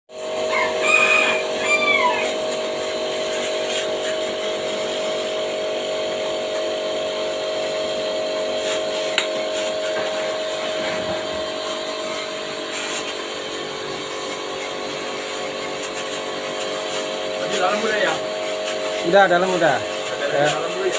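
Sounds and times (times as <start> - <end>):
electric motor whine: 6.0 - 20.9.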